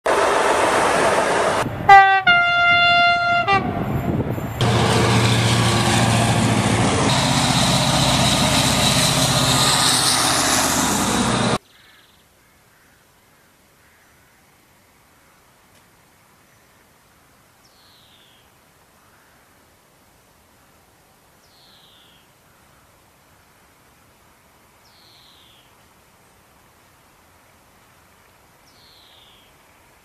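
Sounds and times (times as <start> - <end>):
diesel locomotive engine drone: 0.0 - 11.6
train rail noise: 0.1 - 11.6
locomotive horn blasts: 1.9 - 3.9, 4.6 - 9.4.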